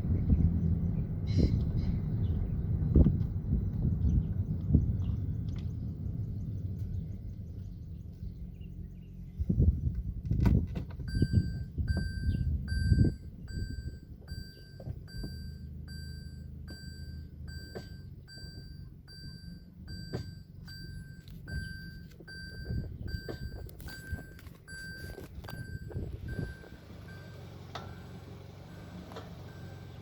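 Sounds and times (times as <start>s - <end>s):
reverse warning beeper: 11.1s - 30.0s.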